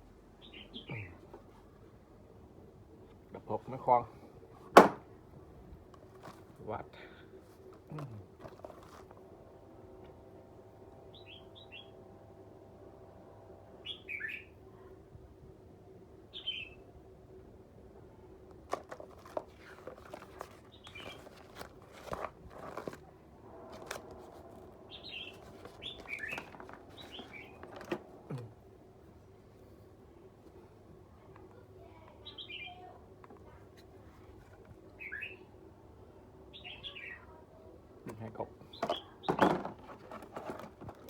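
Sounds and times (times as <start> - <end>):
steady low hum: 0.0 - 32.2
bird chirping: 0.4 - 1.2, 11.0 - 12.0, 13.8 - 14.6, 16.3 - 16.8, 24.8 - 27.8, 32.2 - 32.9, 35.0 - 35.5, 36.5 - 37.4.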